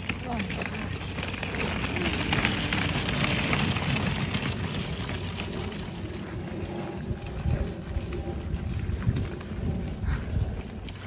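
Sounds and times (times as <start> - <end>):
footsteps on trail: 0.0 - 11.0.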